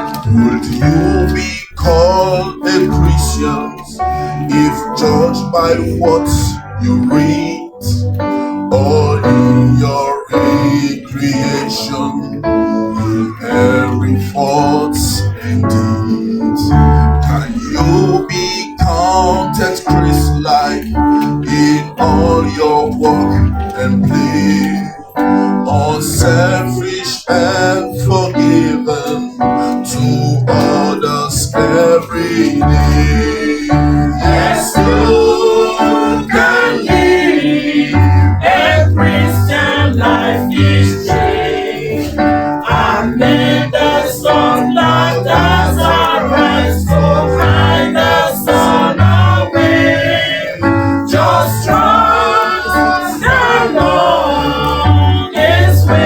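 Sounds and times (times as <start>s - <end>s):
gospel choir singing: 0.0s - 56.0s
band with keyboard and beat: 15.4s - 56.0s.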